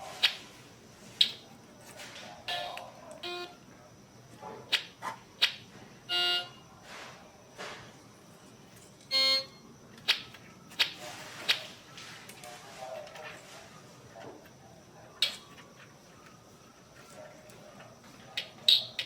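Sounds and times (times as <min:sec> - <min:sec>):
toy electronic organ notes: 0:02.5 - 0:03.5, 0:06.1 - 0:06.6, 0:09.1 - 0:09.6.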